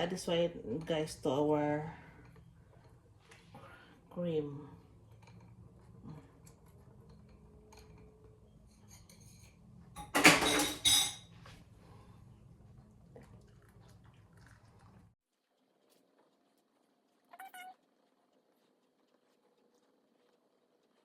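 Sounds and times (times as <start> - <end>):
low steady hum: 0.0 - 15.2
utensils clinking against cookware: 7.0 - 11.5.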